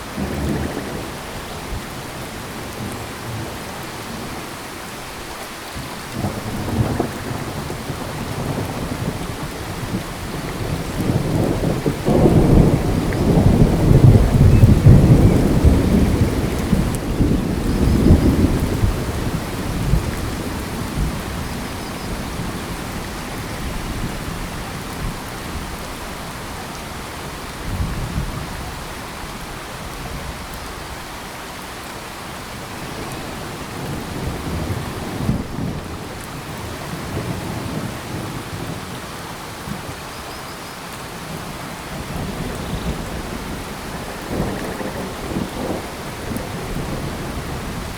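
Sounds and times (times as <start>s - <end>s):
steady rain falling: 0.0s - 47.9s
thunder rumbling: 0.1s - 2.0s, 6.0s - 25.9s, 32.7s - 39.0s, 41.2s - 47.9s.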